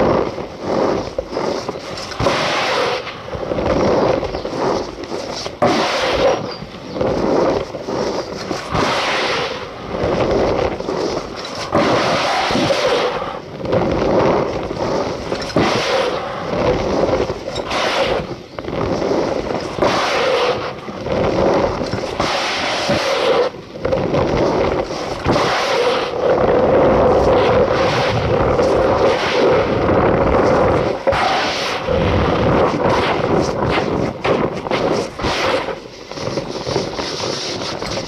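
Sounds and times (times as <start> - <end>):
powder squeaky crunching by hand: 3.8 - 5.6.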